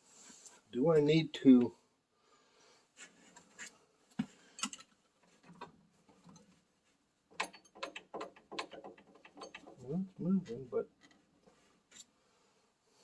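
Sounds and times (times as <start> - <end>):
wrench clicking on metal parts: 7.4 - 9.8.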